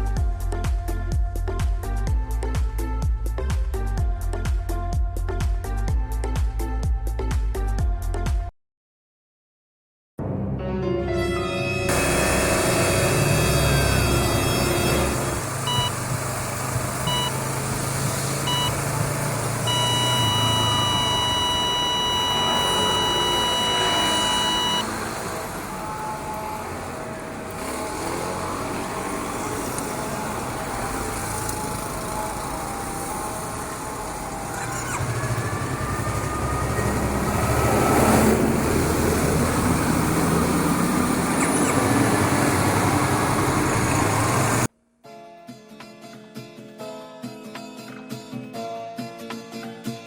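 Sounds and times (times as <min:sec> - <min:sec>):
background music: 0:10.2 - 0:15.9
steady electronic beep: 0:11.9 - 0:16.0, 0:17.0 - 0:17.4, 0:18.4 - 0:19.0, 0:19.6 - 0:24.9
motorcycle engine riding: 0:11.9 - 0:44.7
traffic: 0:11.9 - 0:44.7
wind: 0:11.9 - 0:44.7.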